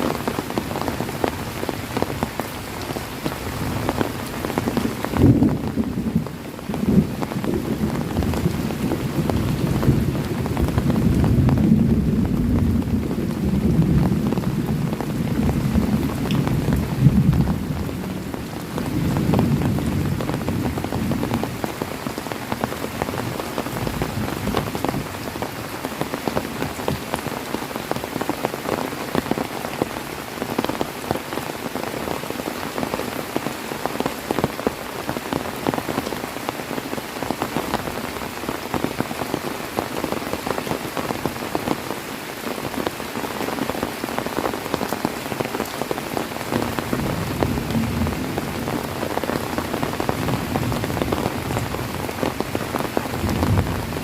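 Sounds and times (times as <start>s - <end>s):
heavy rain falling: 0.0s - 54.0s
thunder rumbling: 3.5s - 21.7s, 46.5s - 54.0s.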